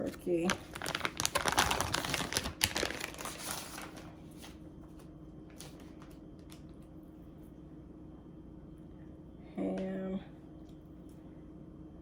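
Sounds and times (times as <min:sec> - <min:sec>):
plastic packaging crinkling: 0:00.0 - 0:04.6.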